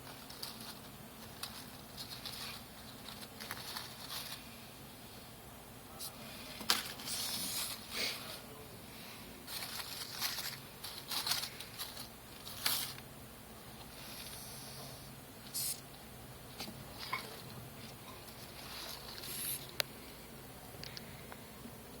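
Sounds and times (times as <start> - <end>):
cockroaches hissing: 14.0 - 15.8, 19.2 - 19.7.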